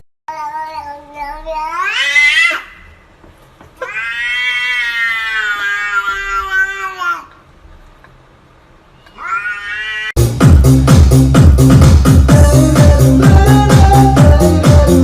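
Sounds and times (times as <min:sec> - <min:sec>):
cat meowing: 0:03.8 - 0:07.3, 0:09.1 - 0:10.2.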